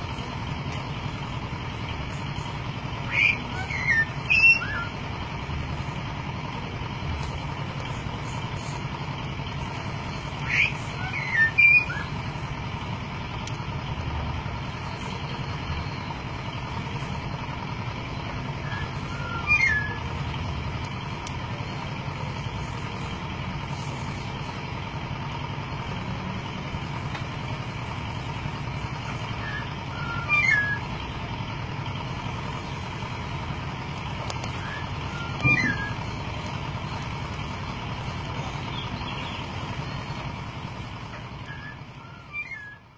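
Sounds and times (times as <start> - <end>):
bird whistled calls: 3.0 - 5.0, 10.4 - 12.2, 18.6 - 20.1, 29.2 - 30.9, 34.6 - 36.1, 41.4 - 42.9.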